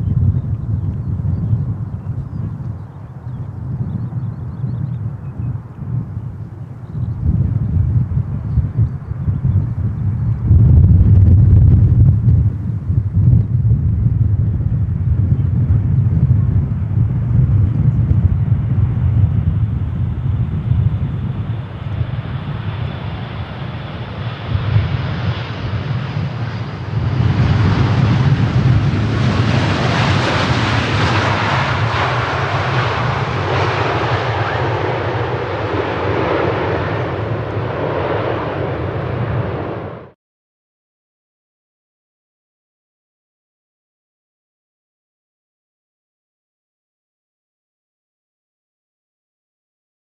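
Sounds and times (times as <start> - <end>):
jet engine rumble: 0.0 - 40.2
rushing jet roar: 14.4 - 40.2.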